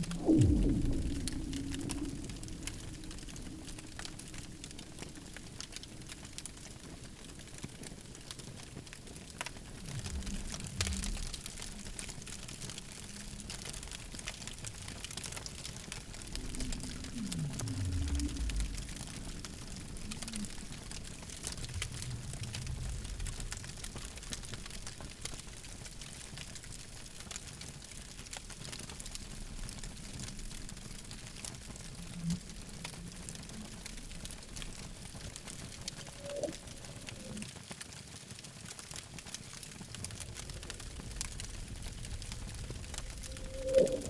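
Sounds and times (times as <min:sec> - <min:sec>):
low whistling glides: 0:00.0 - 0:06.2, 0:33.3 - 0:37.5, 0:42.0 - 0:44.0
campfire crackling: 0:00.0 - 0:44.0.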